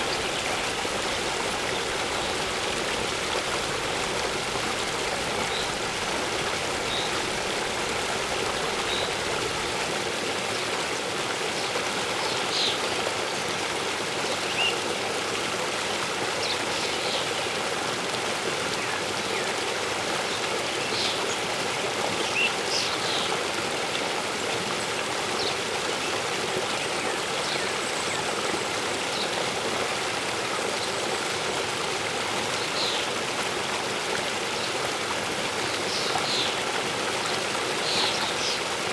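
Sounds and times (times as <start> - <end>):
birds chirping: 0.0 - 9.9
waterfall splashing into stream: 0.0 - 12.0.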